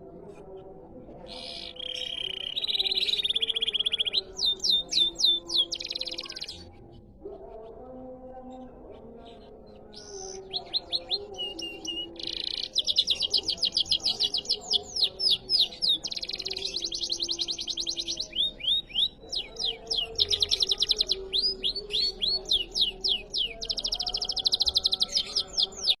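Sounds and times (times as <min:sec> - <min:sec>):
canary singing: 0:01.2 - 0:07.8, 0:08.5 - 0:26.0.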